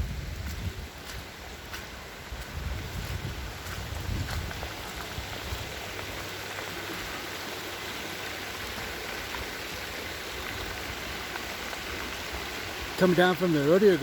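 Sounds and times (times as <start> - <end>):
wind buffeting microphone: 0.0 - 6.3
floodwater rushing: 0.0 - 14.0.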